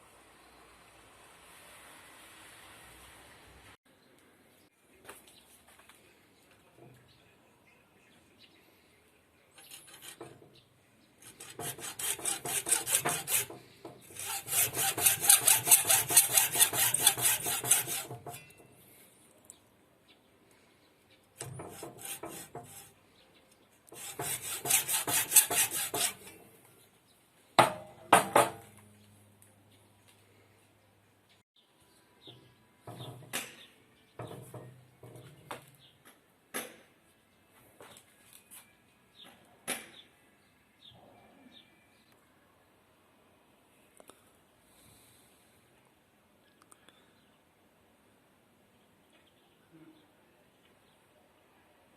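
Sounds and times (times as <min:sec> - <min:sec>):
fast scraping strokes: 0:11.2 - 0:18.6, 0:21.4 - 0:23.0, 0:23.9 - 0:26.4.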